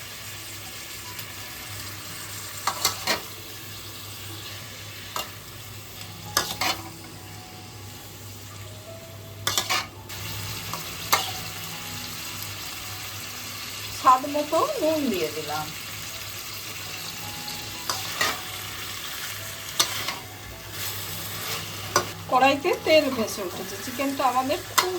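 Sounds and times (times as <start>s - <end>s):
chicken sizzling in oil: 0.0s - 24.9s
spatula scraping pan: 6.4s - 7.0s, 9.4s - 9.9s.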